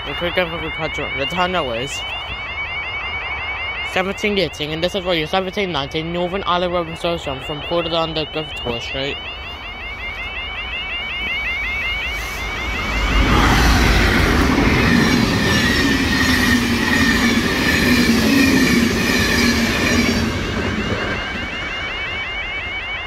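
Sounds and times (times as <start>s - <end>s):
level crossing alarm warbling: 0.0s - 23.0s
diesel train passing: 10.8s - 23.0s.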